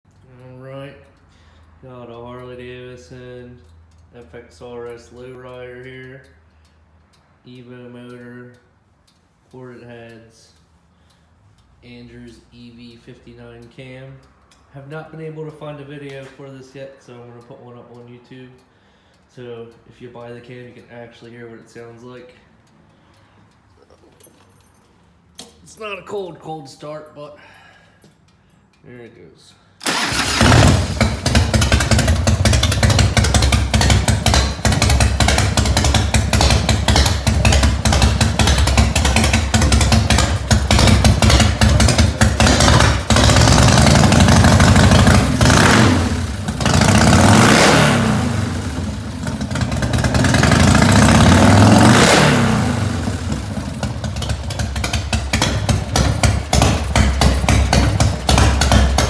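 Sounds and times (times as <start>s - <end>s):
motorcycle engine idling and revving: 29.8s - 59.0s.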